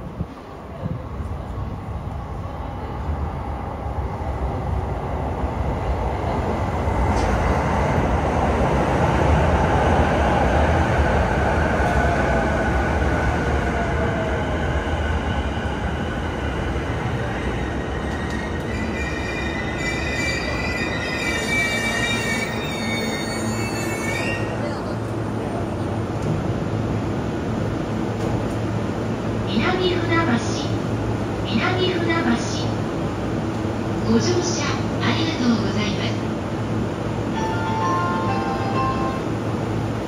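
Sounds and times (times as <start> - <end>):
train wheel and rail rumble: 0.0 - 40.0
wheels and brakes squealing: 18.1 - 24.6.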